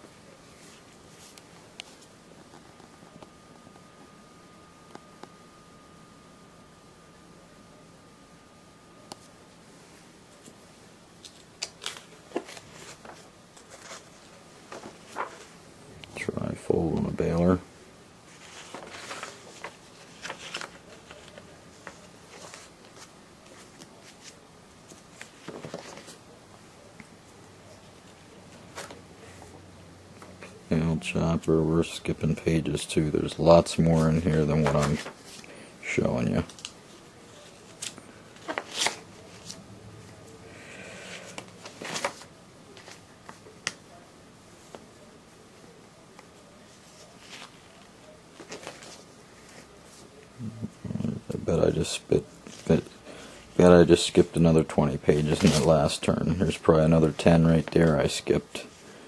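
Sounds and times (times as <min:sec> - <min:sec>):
paper rustling: 0:11.2 - 0:15.6, 0:18.3 - 0:26.2, 0:28.0 - 0:29.4, 0:33.3 - 0:40.2, 0:41.0 - 0:43.8, 0:46.1 - 0:50.2, 0:55.0 - 0:58.4.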